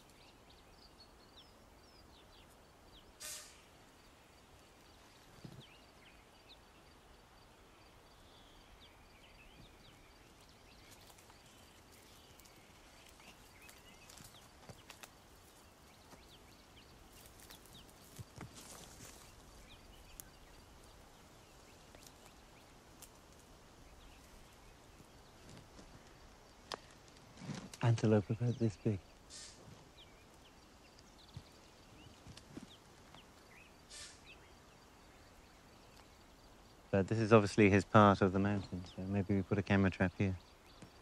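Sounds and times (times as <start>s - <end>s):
small clicks and rustles: 10.8s - 16.3s, 21.8s - 22.4s.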